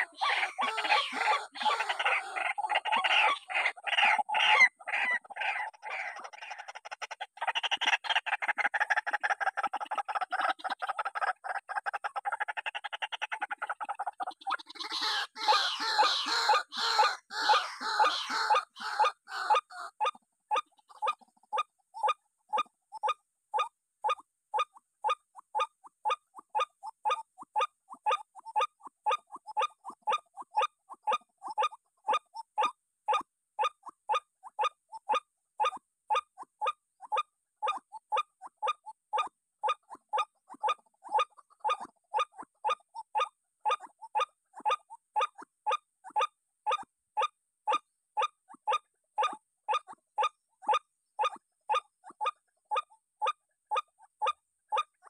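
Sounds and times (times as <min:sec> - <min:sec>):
waterhen kwak calls: 0:00.0 - 0:21.2.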